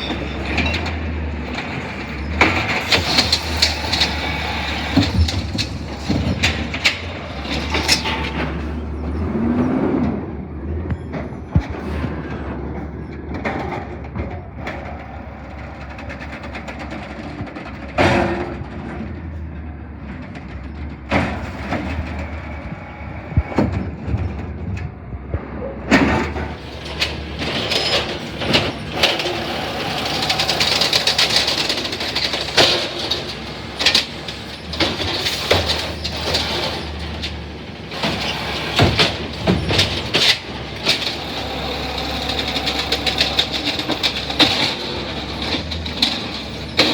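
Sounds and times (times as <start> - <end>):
garbage truck engine running: 0.0 - 46.9
metallic bangs and clatter: 0.0 - 46.9
loud metal clanks: 25.9 - 46.9.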